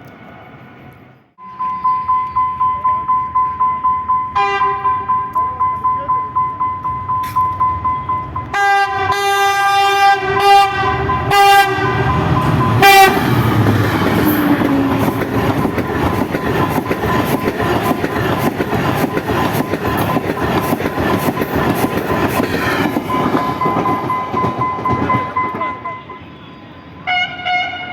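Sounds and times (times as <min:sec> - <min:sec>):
train passing rumble: 0:00.0 - 0:27.9
locomotive horn blasts: 0:04.2 - 0:05.4, 0:06.8 - 0:14.6, 0:24.8 - 0:27.9.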